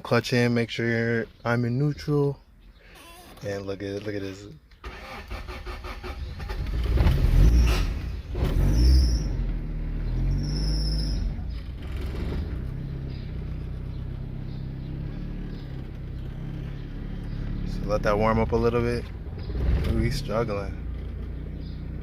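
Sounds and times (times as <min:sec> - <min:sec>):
car engine starting and idling: 0:04.8 - 0:22.0
engine squeals: 0:04.8 - 0:22.0.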